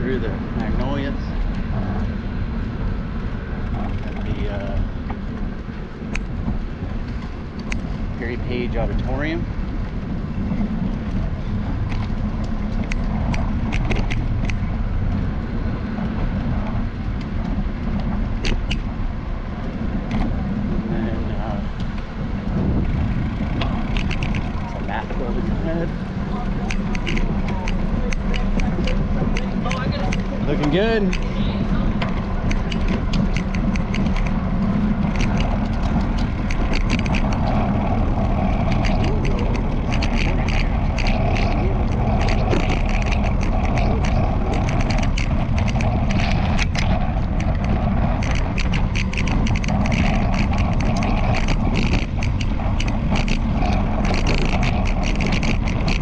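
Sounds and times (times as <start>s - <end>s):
bicycle ride rumble: 0.0s - 56.0s
camera mount clicks and rattles: 22.8s - 24.6s, 32.0s - 34.4s, 35.0s - 37.7s, 38.6s - 56.0s.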